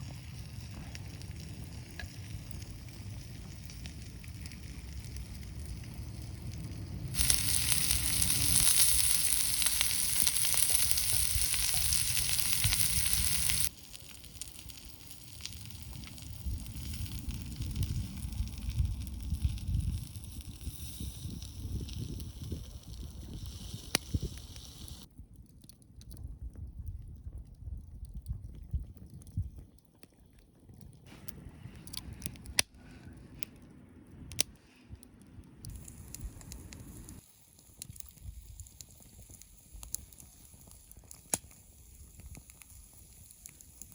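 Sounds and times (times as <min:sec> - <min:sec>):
wind rumble on microphone: 0:00.0 - 0:37.2
fire crackling: 0:00.0 - 0:43.9
food sizzling: 0:01.8 - 0:25.1.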